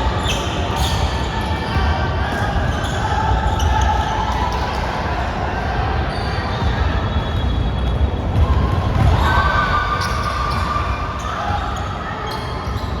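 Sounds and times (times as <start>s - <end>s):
echoing gym background noise: 0.0s - 13.0s
basketball bouncing on court: 6.6s - 10.7s.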